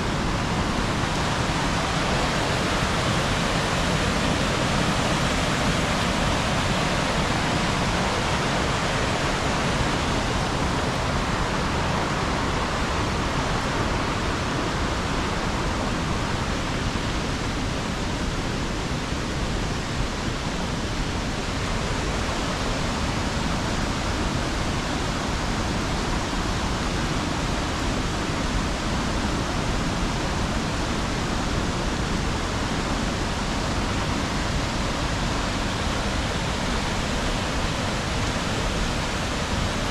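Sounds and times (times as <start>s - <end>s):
waterfall and river rushing: 0.0s - 39.9s.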